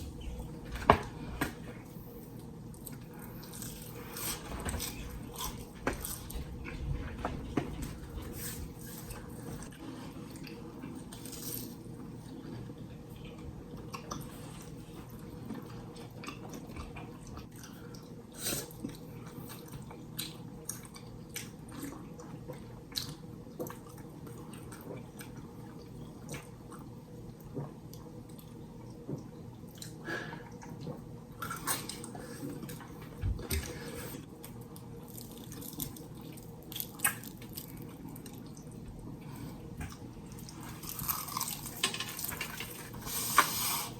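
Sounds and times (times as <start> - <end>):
steady low hum: 0.0 - 43.9
crunchy bites and chewing: 40.8 - 41.8.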